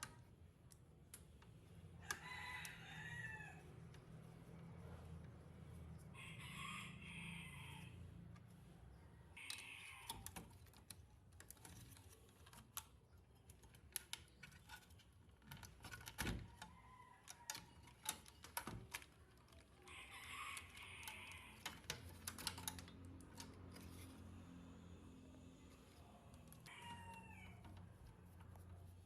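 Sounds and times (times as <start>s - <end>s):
scratchy rustle: 25.7s - 29.0s.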